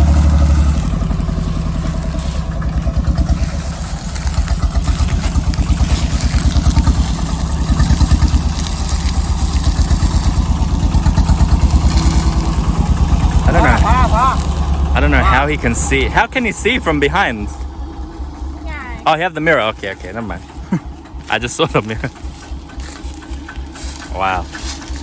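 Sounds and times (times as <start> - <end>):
truck engine chugging: 0.0 - 25.0.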